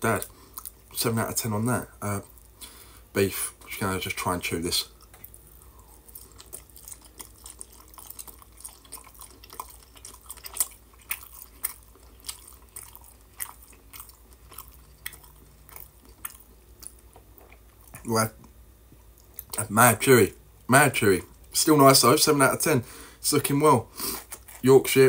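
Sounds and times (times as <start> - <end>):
person chewing: 0.2 - 1.0, 4.8 - 19.7, 23.9 - 25.0.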